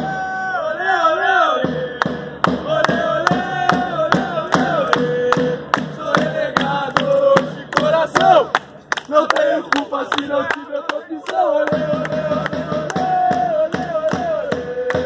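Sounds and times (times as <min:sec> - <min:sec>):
crowd singing a football chant: 0:00.0 - 0:15.0
steady drum beat: 0:01.5 - 0:08.2, 0:11.6 - 0:15.0.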